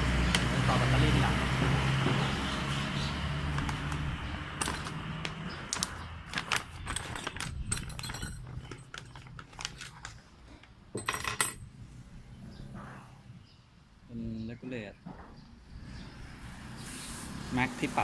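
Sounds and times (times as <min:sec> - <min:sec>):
small metal parts clinking: 0:04.6 - 0:05.0, 0:05.8 - 0:10.2, 0:11.0 - 0:11.7
metal parts rattling: 0:04.6 - 0:05.1, 0:05.7 - 0:10.2, 0:11.0 - 0:11.7.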